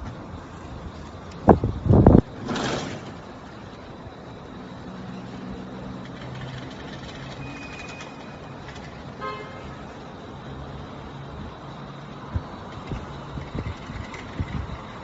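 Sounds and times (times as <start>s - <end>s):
road traffic noise: 0.0s - 15.0s
car horn: 9.2s - 9.9s.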